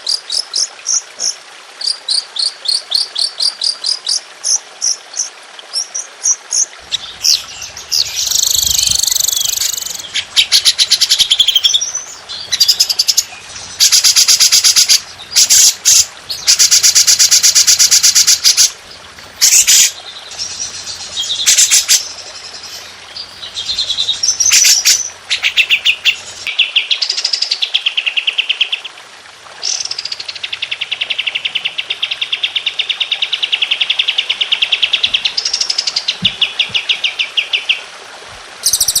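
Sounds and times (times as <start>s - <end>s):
songbird rapid trills: 5.2s - 26.5s.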